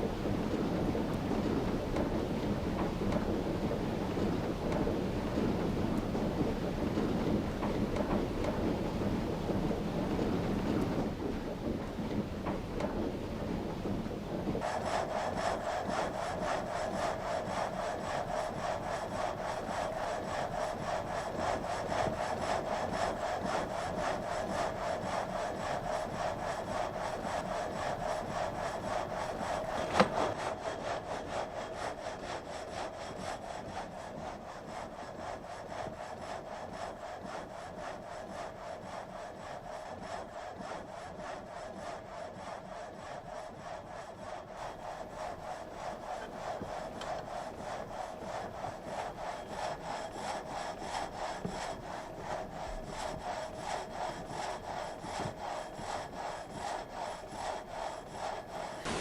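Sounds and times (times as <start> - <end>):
frame saw rasping through timber: 14.7 - 37.4, 42.4 - 59.0.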